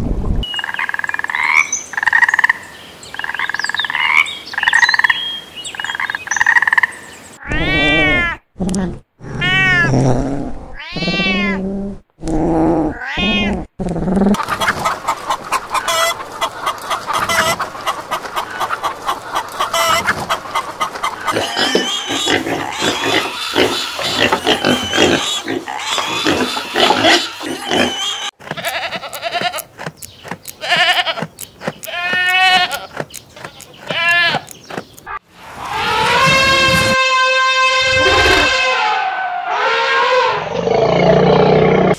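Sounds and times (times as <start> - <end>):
cat meowing: 9.3 - 9.9, 10.8 - 11.6, 12.9 - 13.7
hens clucking: 14.3 - 36.8.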